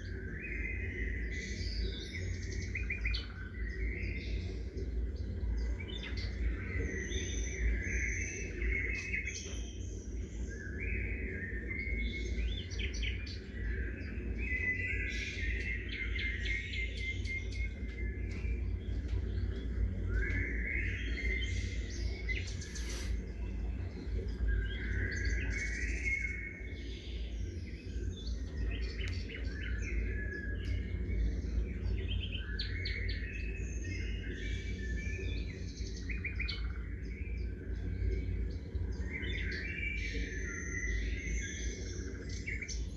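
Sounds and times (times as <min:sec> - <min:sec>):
songbirds chirping and trilling: 0:00.0 - 0:42.9
steady low rumble: 0:16.2 - 0:26.0.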